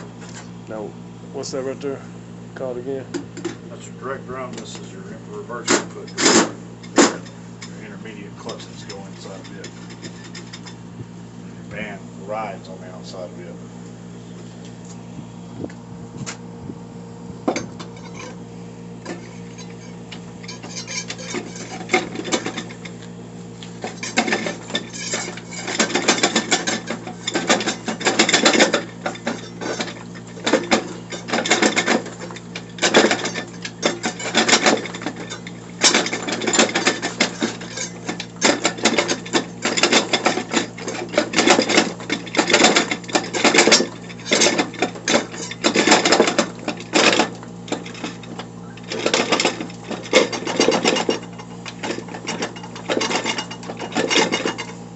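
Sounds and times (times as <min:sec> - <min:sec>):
metallic clicking and rattling: 0:23.8 - 0:54.8.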